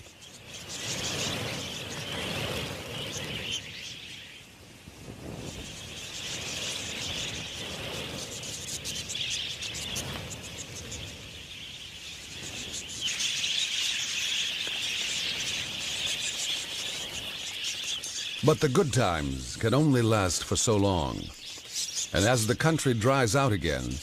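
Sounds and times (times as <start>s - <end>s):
budgerigars chattering: 5.8s - 24.0s.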